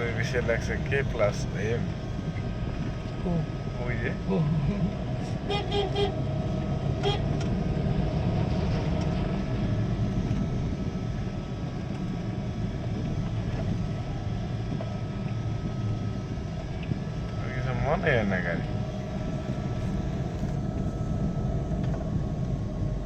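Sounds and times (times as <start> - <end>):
truck engine and road rumble: 0.0 - 23.0
horn toots: 5.4 - 6.2, 7.0 - 7.2.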